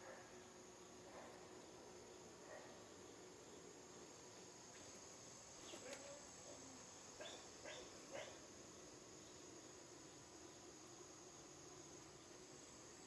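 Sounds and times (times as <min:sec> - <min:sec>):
faint dog barks: 0:00.0 - 0:00.4, 0:01.0 - 0:01.5, 0:02.4 - 0:02.9, 0:05.8 - 0:08.5
steady high hiss: 0:00.0 - 0:13.0.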